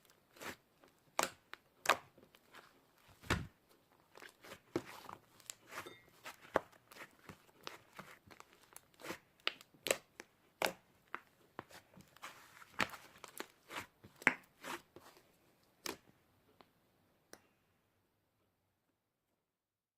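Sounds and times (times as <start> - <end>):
slime crunching and crackling: 0.0 - 15.2.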